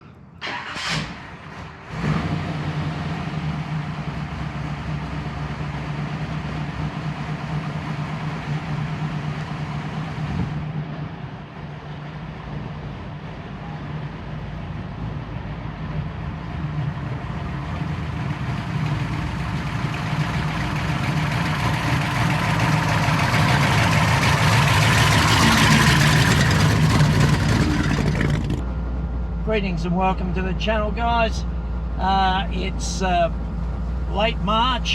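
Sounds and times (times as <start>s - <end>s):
car engine droning: 0.0s - 34.9s
broad rushing noise: 12.3s - 28.6s.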